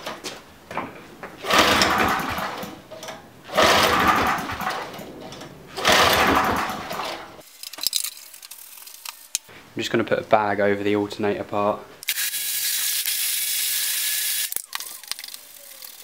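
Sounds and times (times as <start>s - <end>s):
engine spinning over: 1.4s - 2.8s, 3.5s - 7.4s
recoil starter pulls: 1.4s - 7.4s.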